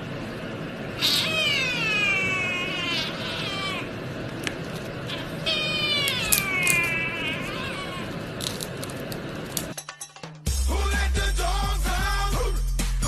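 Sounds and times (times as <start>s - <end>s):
cat meowing: 1.0s - 4.0s, 5.0s - 8.4s
music: 9.8s - 13.0s.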